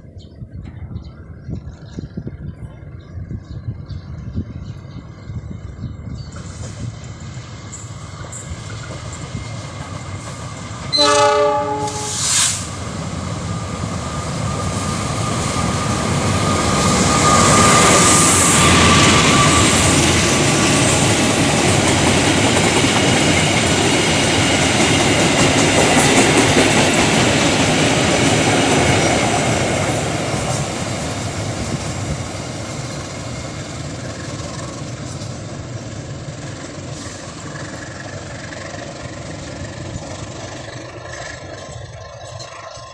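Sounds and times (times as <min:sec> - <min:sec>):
train running past: 0:00.0 - 0:42.9
train horn blasts: 0:10.9 - 0:12.6.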